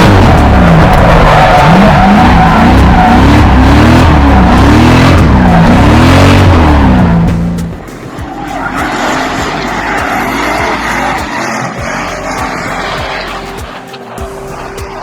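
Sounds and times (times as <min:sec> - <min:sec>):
car engine revving hard: 0:00.0 - 0:15.0
tyre squeal: 0:08.2 - 0:15.0.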